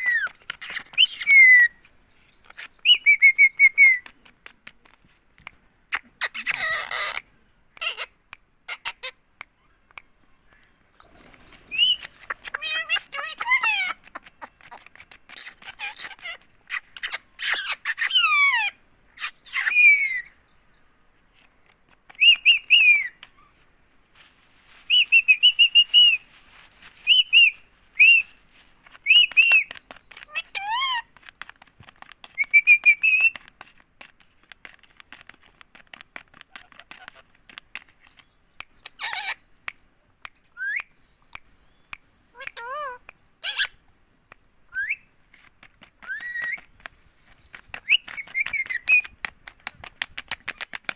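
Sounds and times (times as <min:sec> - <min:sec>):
parakeet chirping and whistling: 0:11.7 - 0:13.9, 0:38.8 - 0:39.4, 0:42.6 - 0:43.7, 0:47.8 - 0:49.1.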